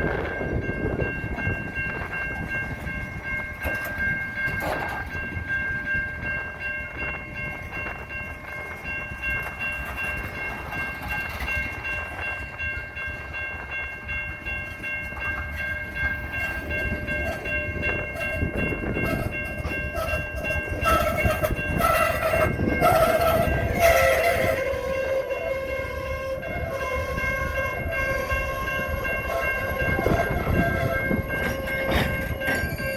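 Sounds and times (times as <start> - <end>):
strong wind rumbling: 0.0 - 8.1, 15.7 - 32.9.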